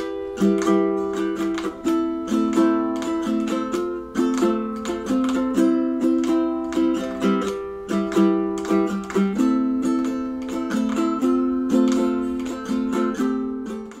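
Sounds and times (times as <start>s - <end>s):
ukulele strumming chords: 0.0s - 14.0s.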